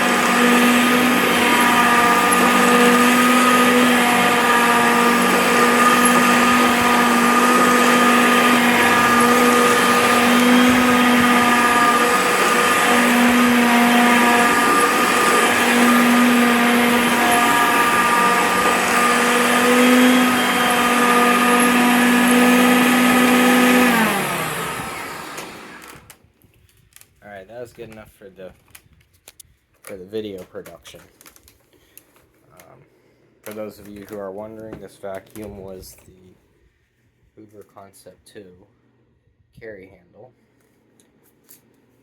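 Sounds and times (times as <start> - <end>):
vacuum cleaner motor hum and whine: 0.0 - 26.1.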